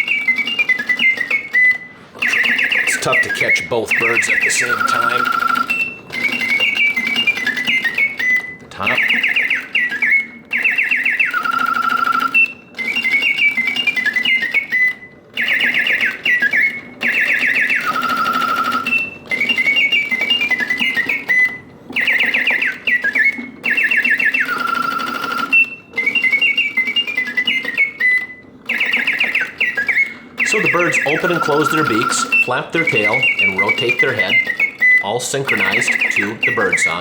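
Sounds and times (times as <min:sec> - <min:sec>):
mechanical bird song trills: 0:00.0 - 0:37.0
clockwork hum: 0:02.1 - 0:08.1, 0:28.7 - 0:37.0.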